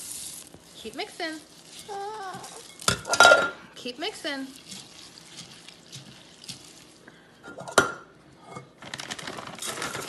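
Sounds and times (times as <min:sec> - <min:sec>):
seed rattling crackle: 0:00.0 - 0:03.0, 0:08.8 - 0:10.0.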